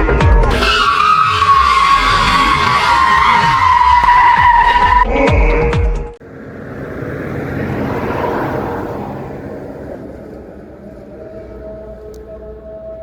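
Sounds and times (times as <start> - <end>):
engine notes falling in pitch: 0.3 - 5.4, 6.2 - 13.0
tyres squealing: 0.4 - 5.3.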